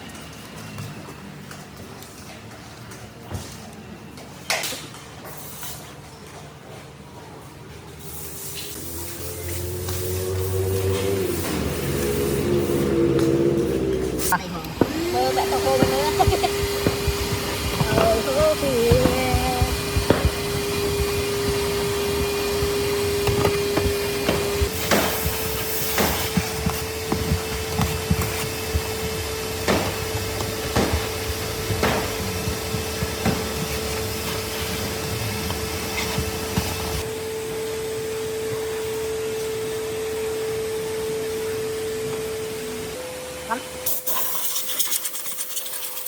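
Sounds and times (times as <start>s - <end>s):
small motor whining: 8.7s - 37.1s.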